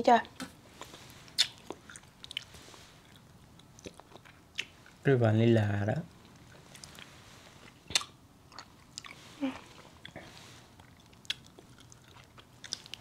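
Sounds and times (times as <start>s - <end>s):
biting and chewing chocolates: 0.8s - 5.0s, 6.3s - 13.0s.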